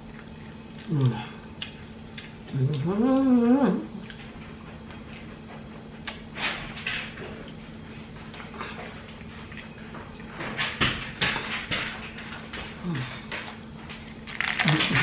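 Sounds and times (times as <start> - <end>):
faint low hum: 0.0 - 15.0
crunchy taco shell chewing: 13.3 - 15.0.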